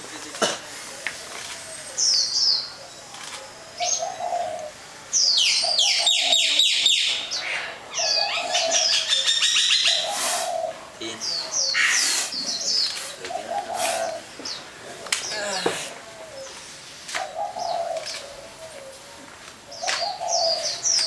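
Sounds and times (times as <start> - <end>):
songbird singing and chirping: 1.0 - 21.0.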